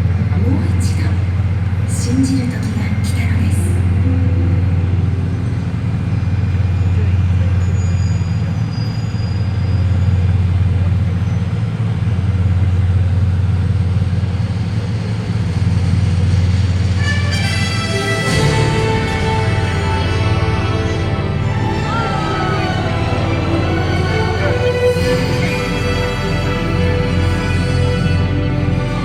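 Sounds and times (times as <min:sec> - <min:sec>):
low rumble: 0:00.0 - 0:08.7, 0:10.2 - 0:29.0
show music: 0:03.6 - 0:06.8, 0:17.0 - 0:29.0
crowd chatter: 0:16.9 - 0:29.0.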